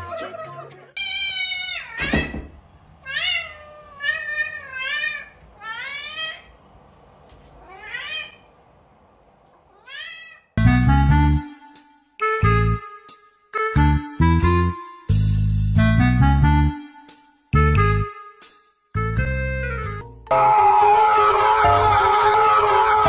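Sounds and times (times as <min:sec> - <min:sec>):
cat meowing: 0:01.0 - 0:02.4, 0:03.0 - 0:06.5, 0:07.6 - 0:08.5, 0:09.6 - 0:10.6
loud music: 0:20.3 - 0:23.0.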